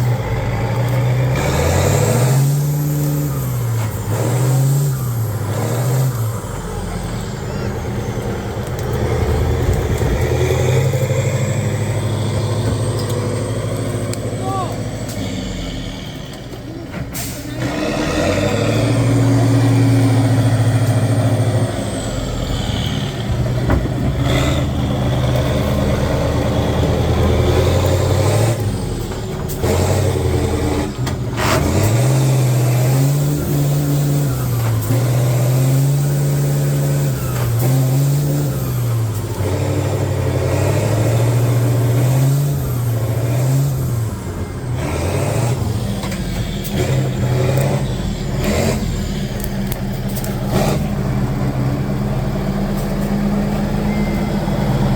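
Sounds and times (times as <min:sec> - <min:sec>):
truck engine working hard: 0:00.0 - 0:54.9
air brake hisses: 0:17.1 - 0:17.6.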